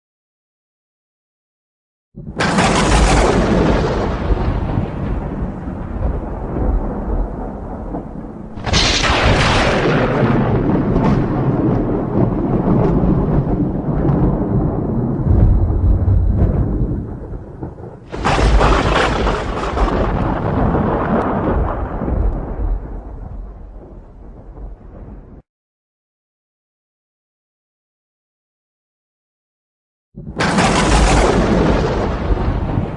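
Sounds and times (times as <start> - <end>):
thunder cracks and rumbling: 2.2 - 25.4, 30.2 - 32.9.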